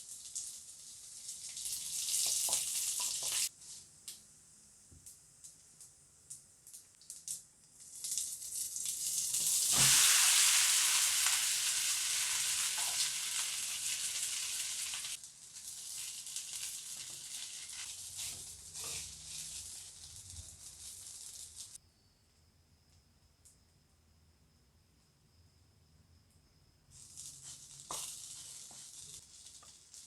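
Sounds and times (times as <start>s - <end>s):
hot oil sizzling in a pan: 0.0s - 3.9s, 6.7s - 21.8s, 27.0s - 30.0s.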